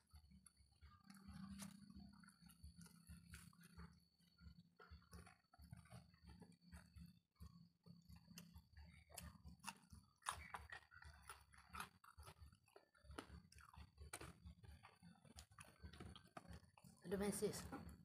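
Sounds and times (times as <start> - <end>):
faint chewing with soft crunches: 0.0 - 18.0.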